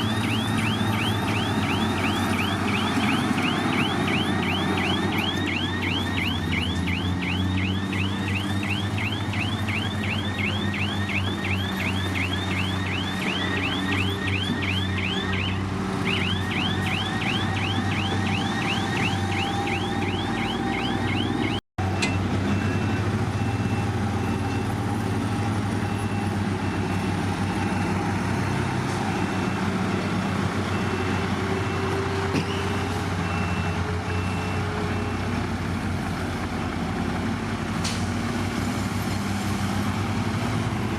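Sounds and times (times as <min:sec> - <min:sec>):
warning alarm chirping: 0:00.0 - 0:21.6
diesel engine running: 0:00.0 - 0:40.9.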